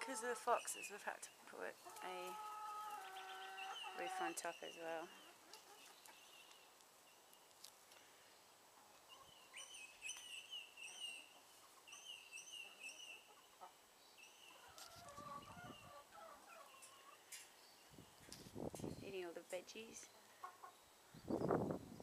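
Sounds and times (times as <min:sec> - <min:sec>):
hens chirping: 0:01.7 - 0:07.3, 0:08.8 - 0:18.4, 0:19.9 - 0:21.7
hens clucking: 0:01.8 - 0:06.3, 0:14.5 - 0:17.4, 0:20.4 - 0:20.8.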